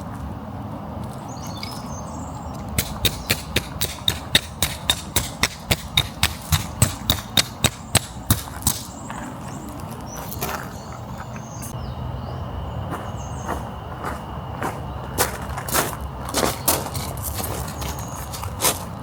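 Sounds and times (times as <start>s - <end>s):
sharp knocks: 2.7s - 8.9s.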